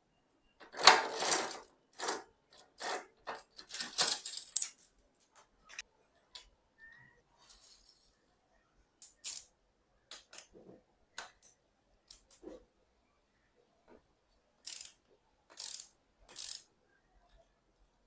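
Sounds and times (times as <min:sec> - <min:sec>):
ratchet-like scraping strokes: 0:14.7 - 0:14.9, 0:15.6 - 0:16.6.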